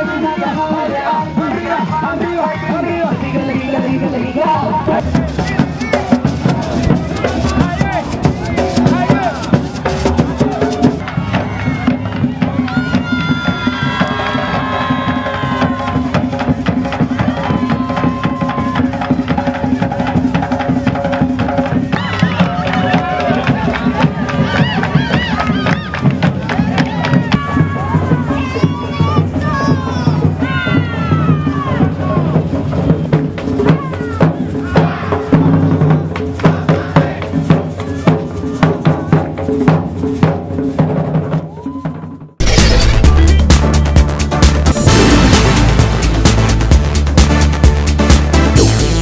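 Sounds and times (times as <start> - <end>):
hand drum and wood percussion: 4.9 - 49.0
shakers: 5.0 - 34.7.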